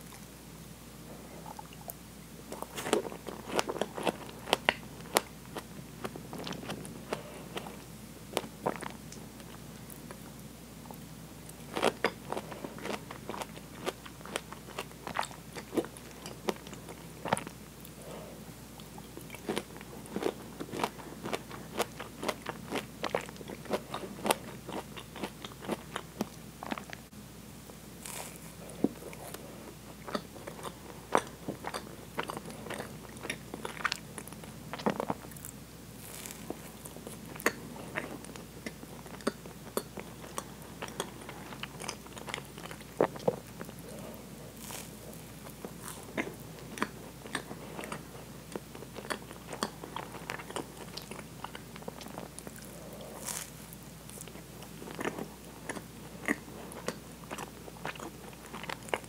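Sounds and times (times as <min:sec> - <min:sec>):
chewing with wet mouth clicks: 0:30.0 - 0:35.5, 0:36.1 - 0:59.0.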